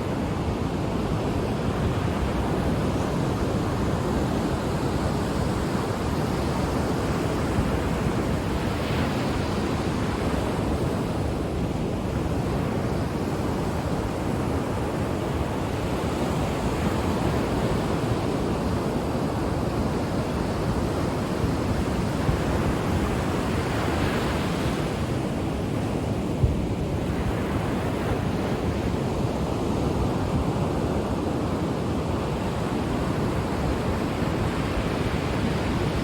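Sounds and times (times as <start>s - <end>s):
ocean surf breaking on shore: 0.0s - 36.0s.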